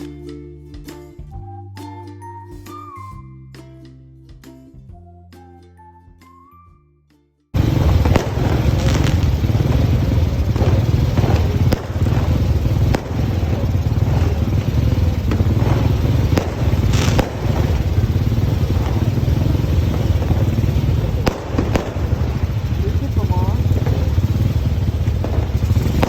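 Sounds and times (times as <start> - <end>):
fireworks bangs and crackles: 7.6 - 26.0
fireworks low rumble: 7.6 - 26.0.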